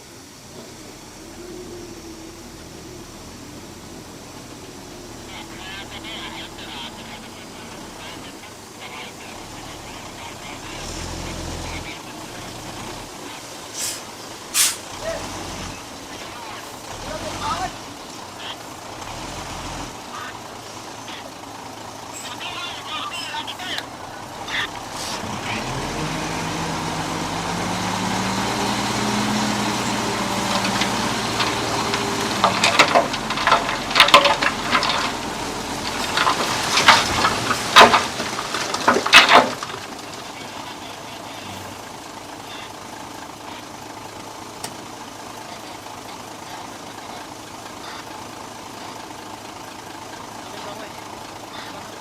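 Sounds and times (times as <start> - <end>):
diesel machine engine running: 0.0 - 52.0
loud metallic clanks and bangs: 30.4 - 40.1.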